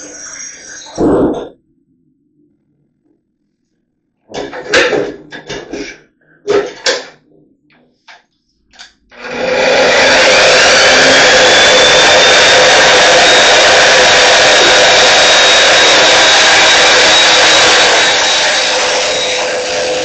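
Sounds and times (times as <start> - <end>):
power tool motor running: 9.2 - 20.0.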